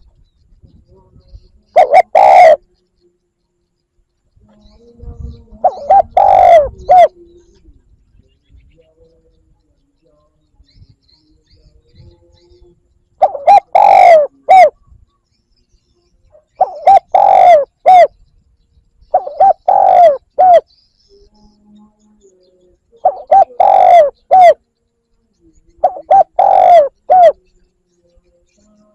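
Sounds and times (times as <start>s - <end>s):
dove cooing: 1.7s - 2.7s, 5.6s - 7.6s, 13.2s - 14.9s, 16.3s - 18.2s, 19.1s - 20.7s, 23.0s - 24.6s, 25.8s - 27.4s.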